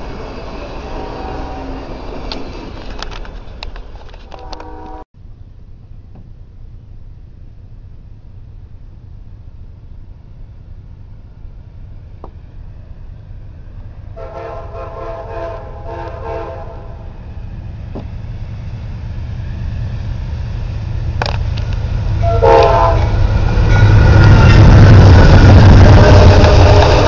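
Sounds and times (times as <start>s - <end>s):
low rumble of train: 0.0s - 27.0s
locomotive horn blasts: 0.9s - 1.8s, 4.3s - 5.0s, 14.2s - 17.0s, 22.2s - 23.2s, 25.8s - 27.0s.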